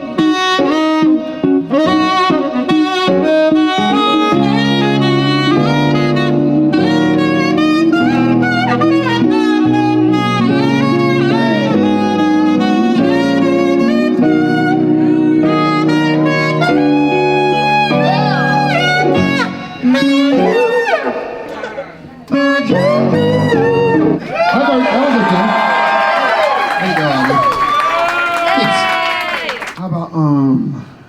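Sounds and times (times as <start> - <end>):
saxophone melody: 0.0 - 24.4
backing music with low chords: 0.2 - 24.2.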